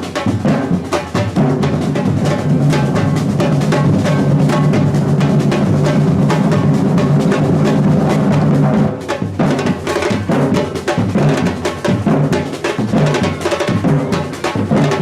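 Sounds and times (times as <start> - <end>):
bass drums: 0.0 - 15.0
snare drums: 0.0 - 15.0.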